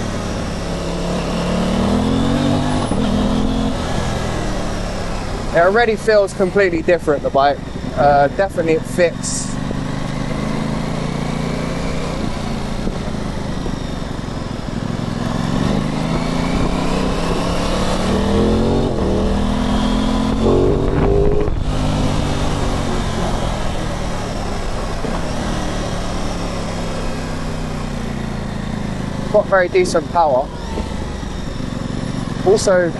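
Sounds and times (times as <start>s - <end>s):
motorcycle engine accelerating: 0.0s - 32.9s
road and wind noise: 0.0s - 32.9s.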